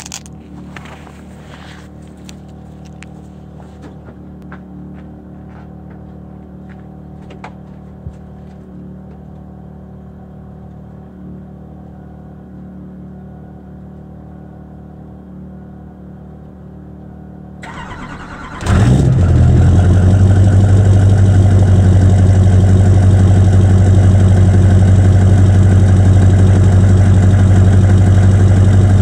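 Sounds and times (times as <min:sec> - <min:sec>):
diesel engine idling: 0:17.6 - 0:29.0.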